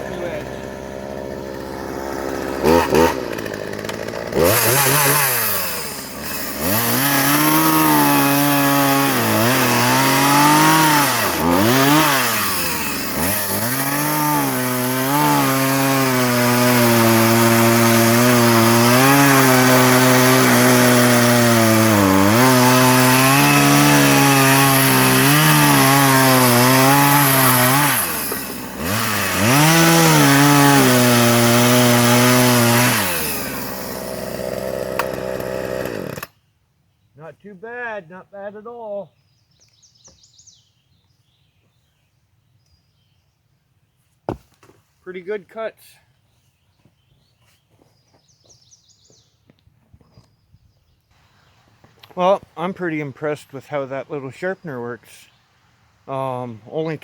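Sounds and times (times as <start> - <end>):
chainsaw cutting wood: 0.0 - 36.4.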